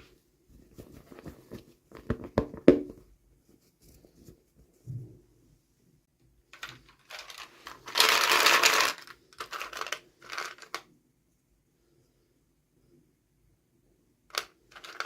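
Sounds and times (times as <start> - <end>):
plastic packaging crinkling: 6.9 - 10.8.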